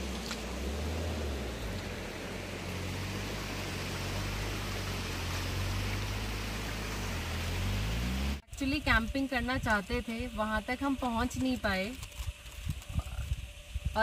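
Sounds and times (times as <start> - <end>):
car engine running at low revs: 0.0 - 14.0.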